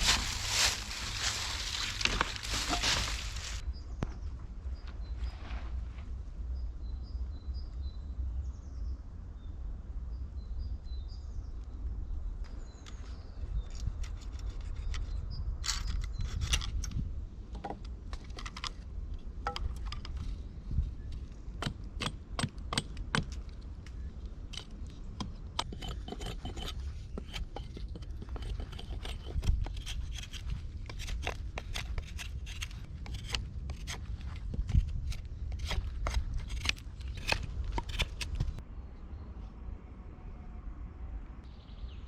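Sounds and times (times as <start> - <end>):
objects being handled: 0.0 - 3.6
steady low rumble: 0.0 - 3.8.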